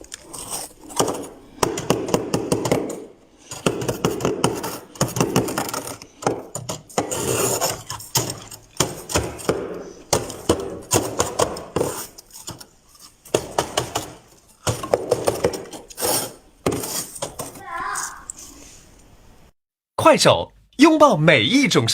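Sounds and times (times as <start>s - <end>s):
squeaky crunching of frost: 0.0s - 1.4s.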